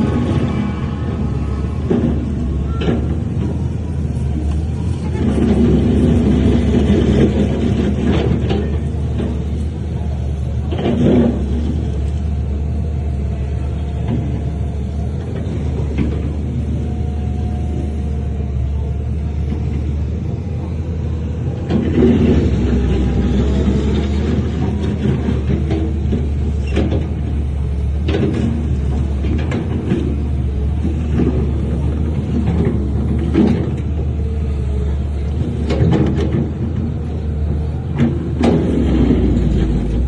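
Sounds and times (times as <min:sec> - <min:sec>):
diesel engine rumbling: 0:00.0 - 0:40.0
metallic clanks and knocks: 0:01.7 - 0:09.6, 0:34.9 - 0:40.0.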